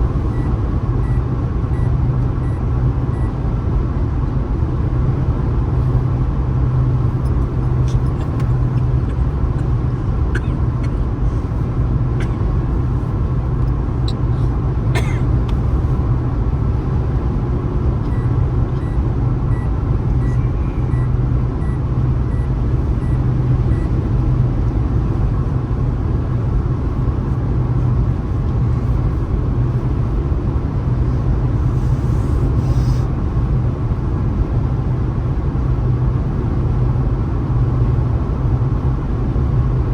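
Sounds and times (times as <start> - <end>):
car road and engine noise: 0.0 - 39.9
faint beeps: 18.1 - 23.9.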